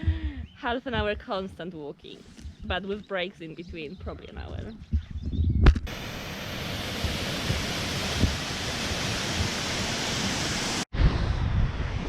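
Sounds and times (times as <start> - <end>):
waterfall rushing: 5.9 - 10.9.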